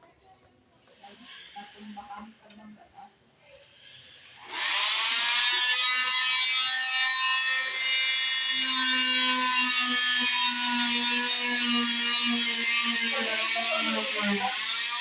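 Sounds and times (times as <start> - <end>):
cast saw whining: 4.3 - 15.0.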